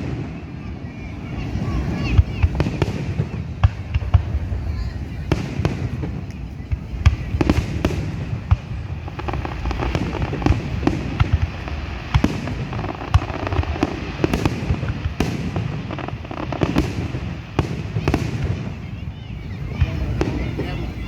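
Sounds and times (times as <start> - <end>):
fireworks booms and bangs: 0.0 - 21.0.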